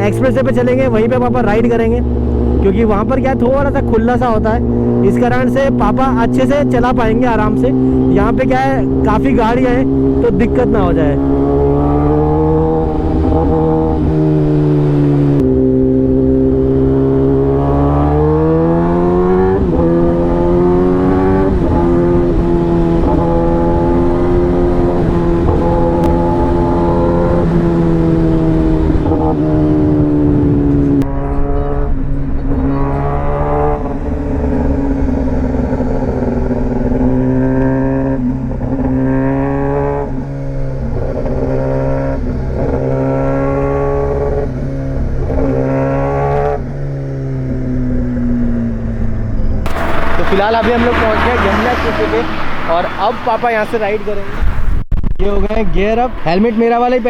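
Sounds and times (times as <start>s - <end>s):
motorcycle engine revving: 0.0s - 54.3s
wind rush of speed: 18.4s - 37.4s, 48.4s - 57.0s.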